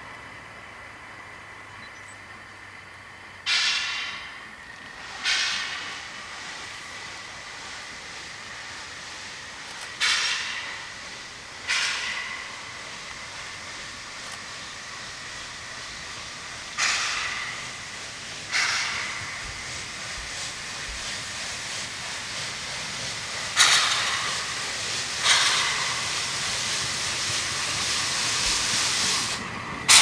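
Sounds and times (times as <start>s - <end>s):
steam locomotive hissing: 0.0s - 30.0s
bursts of steam: 2.3s - 30.0s.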